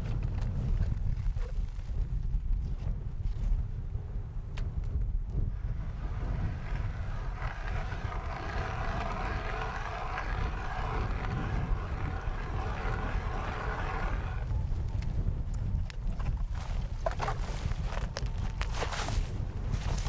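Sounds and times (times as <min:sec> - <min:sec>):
wind buffeting microphone: 0:00.0 - 0:20.0
steady rushing noise: 0:05.5 - 0:14.5.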